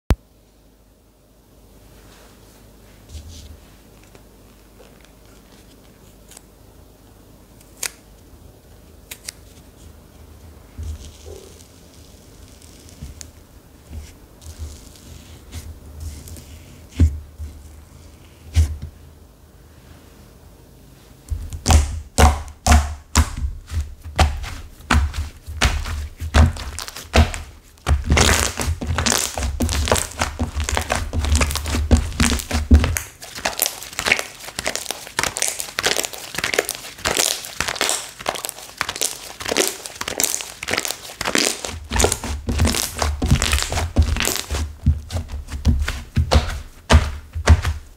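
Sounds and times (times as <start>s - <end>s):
crunchy slime being squeezed: 21.5s - 47.9s.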